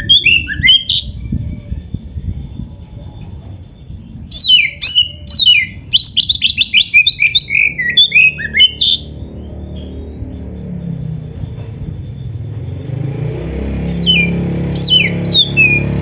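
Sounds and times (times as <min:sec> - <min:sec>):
songbird whistling and chattering: 0:00.0 - 0:01.7, 0:03.8 - 0:09.5, 0:13.8 - 0:16.0.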